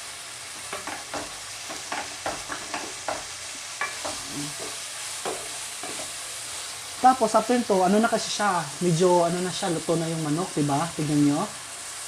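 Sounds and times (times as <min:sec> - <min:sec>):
chicken sizzling in a pan: 0:00.0 - 0:12.0
utensil scraping and tapping pan: 0:00.6 - 0:06.2.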